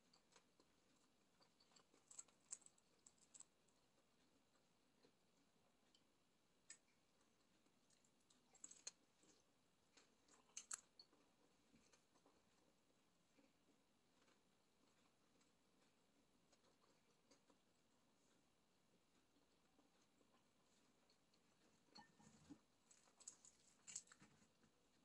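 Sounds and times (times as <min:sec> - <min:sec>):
chewing crunchy food: 0:00.0 - 0:05.2, 0:05.9 - 0:25.0.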